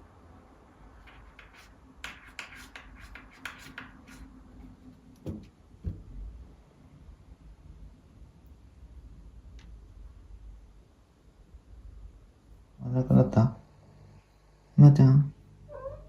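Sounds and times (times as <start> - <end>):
dull thumps: 5.2 - 6.2.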